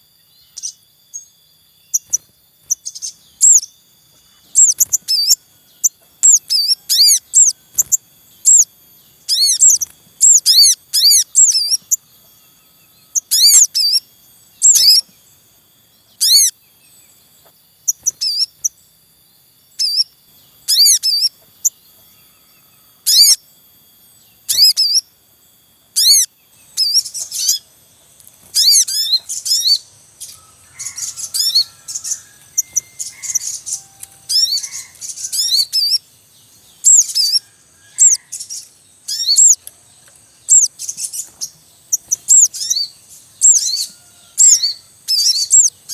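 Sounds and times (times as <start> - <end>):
birds chirping high thin notes: 0.0 - 45.9.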